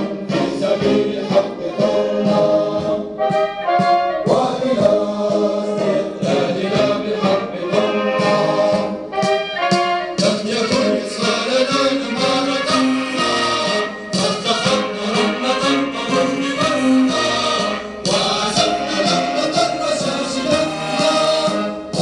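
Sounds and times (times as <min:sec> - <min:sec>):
brass instruments playing: 0:00.0 - 0:22.0
voices singing: 0:00.0 - 0:22.0.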